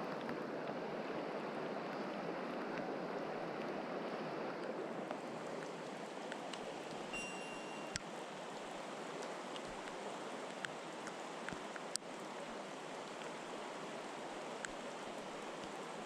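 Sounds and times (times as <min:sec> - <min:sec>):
stream water rushing: 0:00.0 - 0:16.0
faint sharp clicks: 0:04.6 - 0:07.0, 0:09.2 - 0:12.1, 0:14.6 - 0:14.8.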